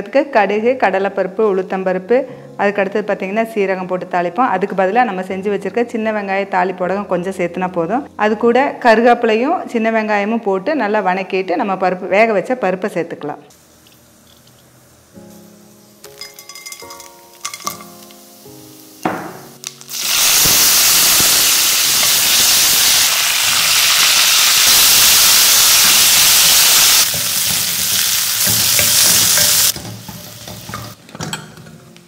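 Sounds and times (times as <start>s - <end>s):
spices sizzling in hot oil: 13.5s - 31.0s
spoon clinking on pan: 16.0s - 18.0s.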